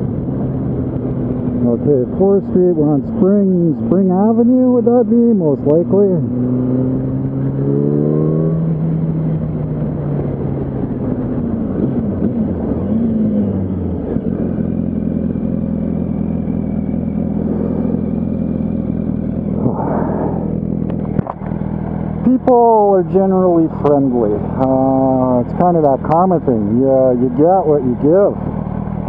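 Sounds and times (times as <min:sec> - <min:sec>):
motorcycle engine running: 0:00.0 - 0:29.0
short rush of noise: 0:19.6 - 0:20.8.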